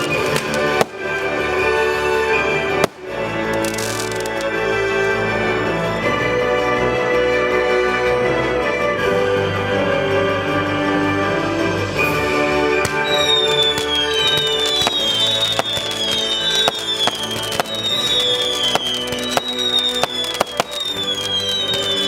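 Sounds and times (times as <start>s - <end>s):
fireworks bangs and crackling: 0.0s - 4.8s, 12.0s - 22.0s
music: 0.0s - 22.0s
firework whistles falling in pitch: 12.8s - 22.0s.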